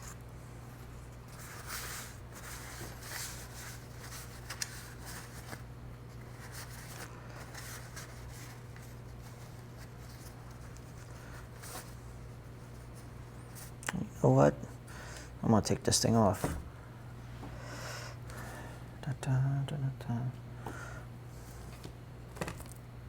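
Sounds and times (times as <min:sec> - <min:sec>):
steady low hum: 0:00.0 - 0:23.0
rubbing and scraping of plastic parts: 0:00.8 - 0:13.7.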